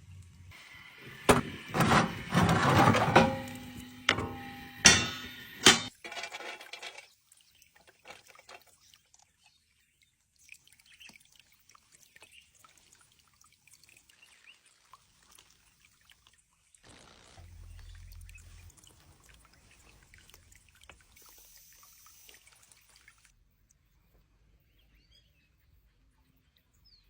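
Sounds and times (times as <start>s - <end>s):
kitchenware knocking with ring: 1.3s - 6.3s.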